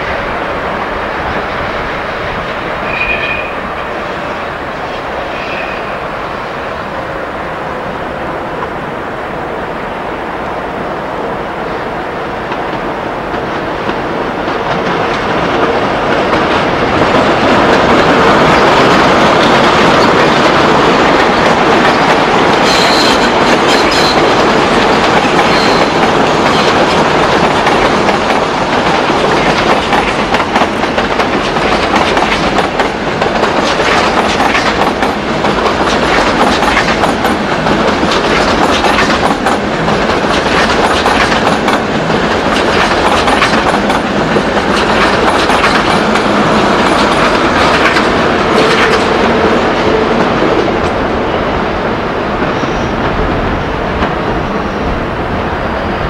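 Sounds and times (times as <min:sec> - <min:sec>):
train wheels rumbling: 0:00.0 - 0:56.0
high wheel squeals: 0:02.8 - 0:03.6, 0:05.3 - 0:06.0, 0:22.6 - 0:24.2
wheels clicking over rail joints: 0:13.3 - 0:49.4.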